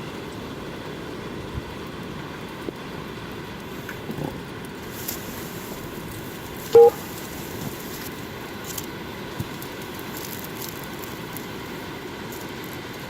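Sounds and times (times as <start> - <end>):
faint crackles: 3.6 - 13.0.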